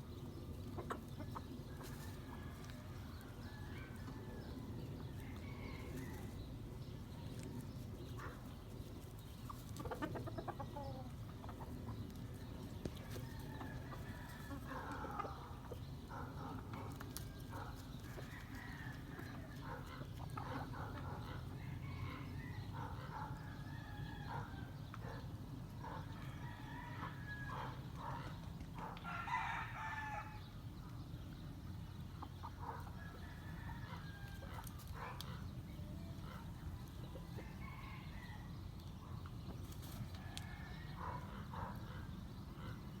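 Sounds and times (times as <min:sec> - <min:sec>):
chickens clucking: 0:00.0 - 0:23.6, 0:30.8 - 0:38.2.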